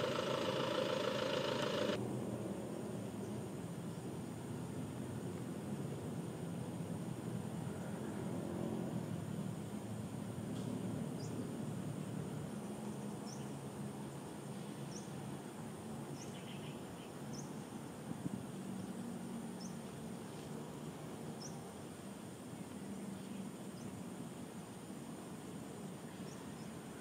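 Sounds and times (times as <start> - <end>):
faint low steady hum: 0.0 - 2.0.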